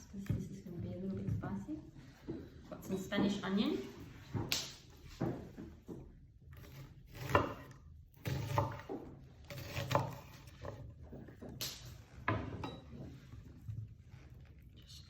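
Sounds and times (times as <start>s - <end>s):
knife scraping board: 6.6s - 11.0s.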